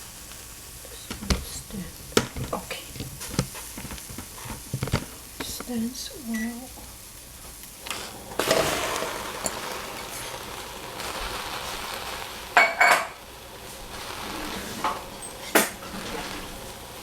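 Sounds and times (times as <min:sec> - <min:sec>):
vegetables sizzling in oil: 0:00.0 - 0:17.0
metal spatula clanking on pan: 0:12.6 - 0:13.2.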